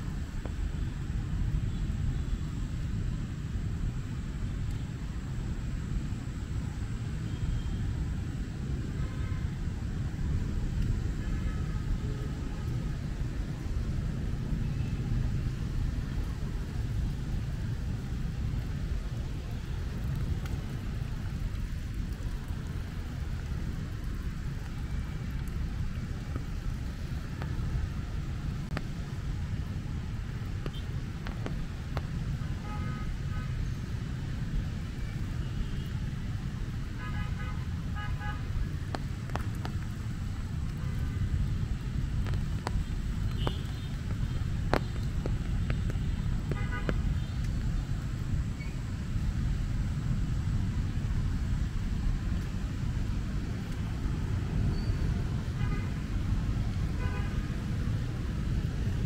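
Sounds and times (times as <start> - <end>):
rain on an umbrella: 0.0 - 59.0
road traffic rumble: 0.0 - 59.0
sharp drips: 9.9 - 32.5, 33.9 - 50.6.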